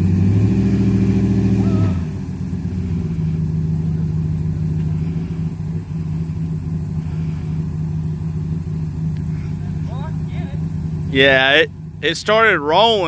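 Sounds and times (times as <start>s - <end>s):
pickup truck engine revving: 0.0s - 13.0s.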